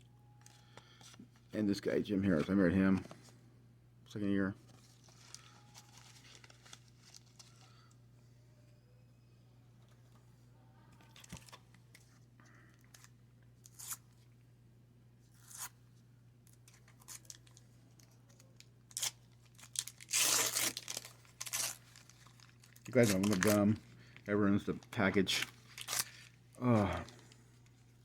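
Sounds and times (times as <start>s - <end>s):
cards rustling: 4.6s - 7.8s, 16.6s - 27.9s
wax paper pack tearing: 18.9s - 23.8s, 24.9s - 27.0s.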